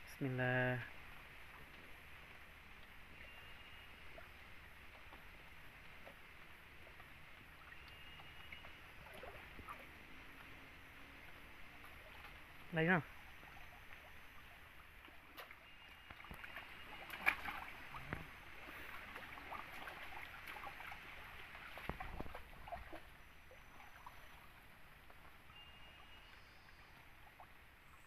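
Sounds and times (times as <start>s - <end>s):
stream water running: 0.0s - 28.0s
splashes and knocks in water: 15.0s - 23.2s.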